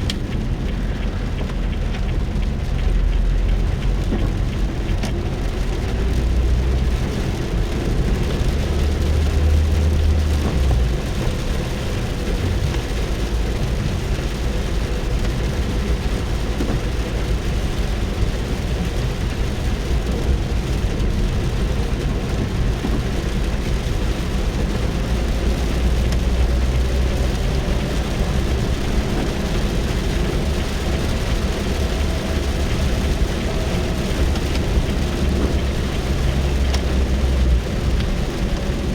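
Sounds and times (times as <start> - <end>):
deep low rumble: 0.0 - 38.9
rain on car roof: 0.0 - 38.9.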